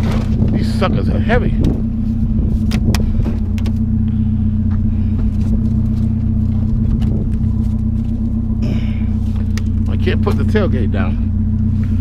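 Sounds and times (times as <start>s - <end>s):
pickup truck engine idling: 0.0s - 12.0s.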